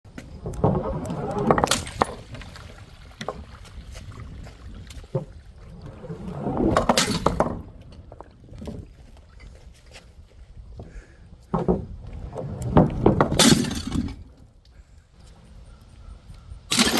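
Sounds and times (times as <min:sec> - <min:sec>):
objects crashing and breaking: 0:00.9 - 0:02.7, 0:12.8 - 0:14.3.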